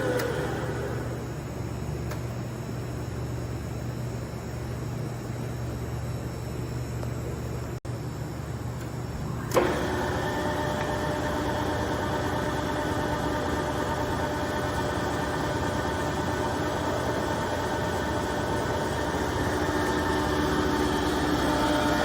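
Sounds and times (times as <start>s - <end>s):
lathe machine hum: 0.0s - 1.6s, 9.2s - 22.0s
lathe whine: 0.0s - 1.6s, 9.1s - 22.0s.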